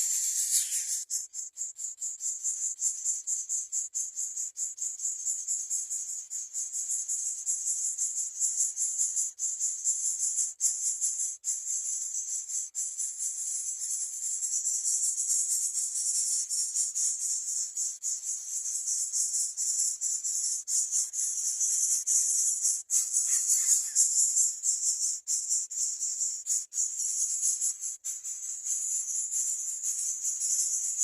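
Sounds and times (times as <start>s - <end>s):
insects buzzing trill: 0.0s - 2.2s, 13.7s - 31.0s.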